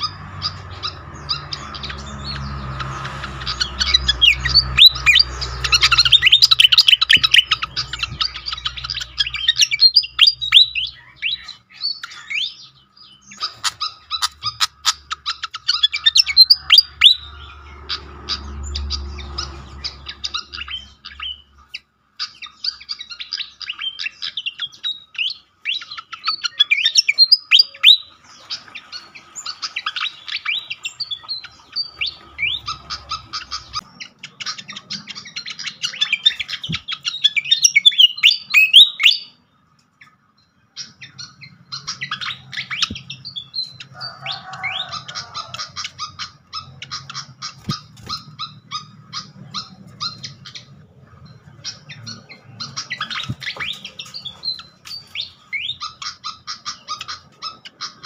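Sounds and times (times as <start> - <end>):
bird chirps and whistles: 3.8 - 12.6, 34.4 - 39.4.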